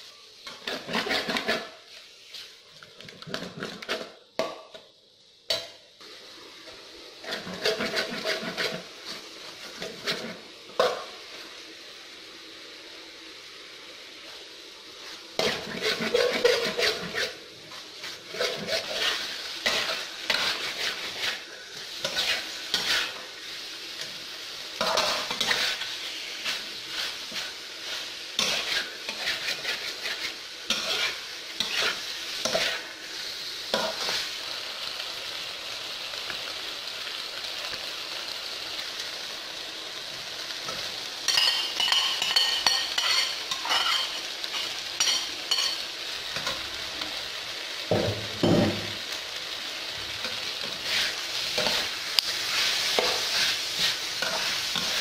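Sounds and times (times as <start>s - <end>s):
meat sizzling in a wok: 0.0s - 55.0s
metal spatula scraping pan: 0.4s - 2.0s, 7.2s - 8.9s, 9.8s - 11.0s, 15.4s - 21.4s, 22.0s - 23.2s, 24.8s - 32.8s, 41.3s - 45.8s.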